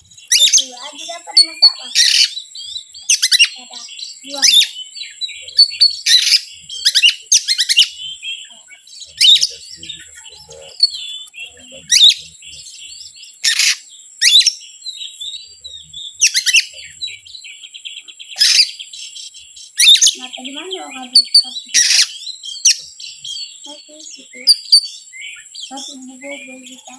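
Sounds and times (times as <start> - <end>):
bird chirping sharply: 0.0 - 26.9.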